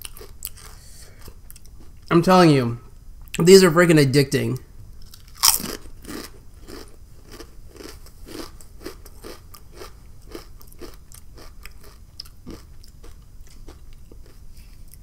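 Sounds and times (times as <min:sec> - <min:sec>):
person crunching potato chips: 0:00.0 - 0:01.9, 0:05.0 - 0:15.0.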